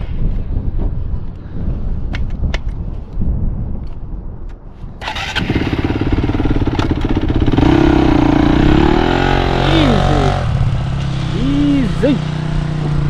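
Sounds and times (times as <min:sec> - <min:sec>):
mini bike engine starting and revving: 0:05.0 - 0:13.0.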